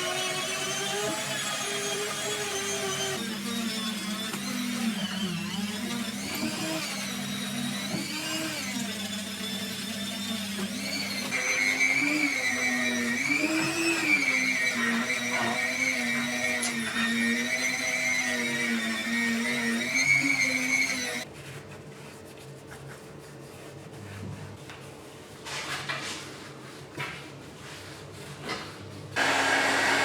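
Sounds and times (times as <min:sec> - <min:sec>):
small electric tool motor whining: 0:00.0 - 0:21.3.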